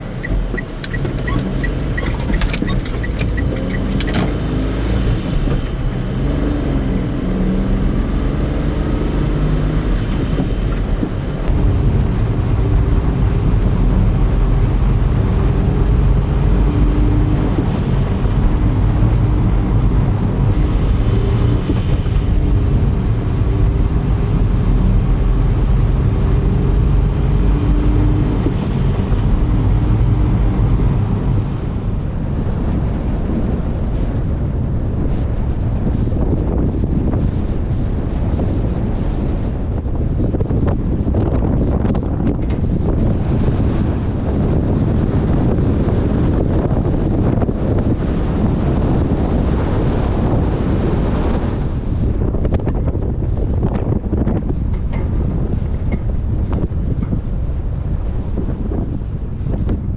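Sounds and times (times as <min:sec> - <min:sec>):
car engine running: 0:00.0 - 0:32.2
road noise: 0:00.0 - 0:32.5.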